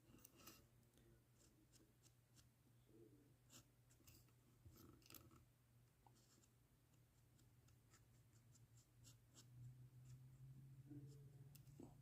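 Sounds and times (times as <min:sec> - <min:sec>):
low steady hum: 0:00.0 - 0:12.0
marker scratching on surface: 0:06.1 - 0:12.0.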